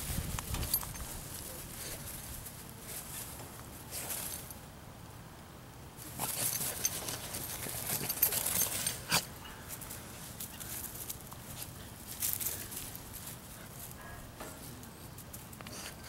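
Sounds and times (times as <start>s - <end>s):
rustling and pattering paws: 0.0s - 4.6s, 6.0s - 16.0s
dogs scuffling in play: 6.0s - 16.0s.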